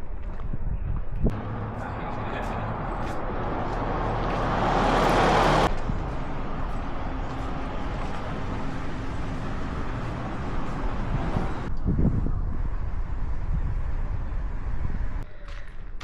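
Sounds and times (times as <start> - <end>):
steady traffic rumble: 0.0 - 15.3
motor vehicle passing: 1.3 - 11.7.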